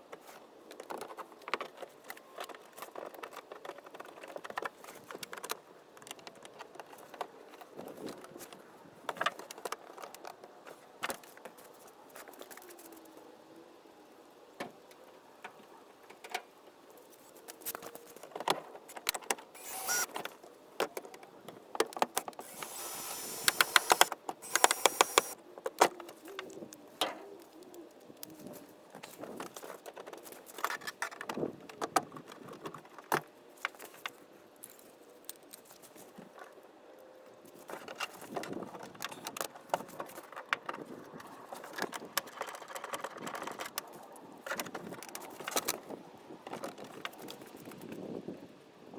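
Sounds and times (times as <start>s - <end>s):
rapid clicking: 22.4s - 25.4s.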